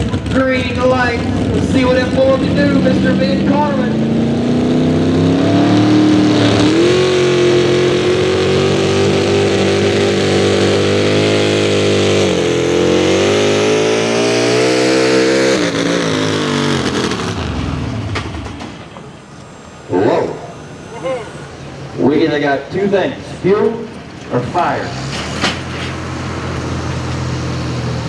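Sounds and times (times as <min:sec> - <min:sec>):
truck engine revving under load: 0:00.0 - 0:28.0
announcer speaking: 0:00.3 - 0:04.2, 0:19.8 - 0:25.0.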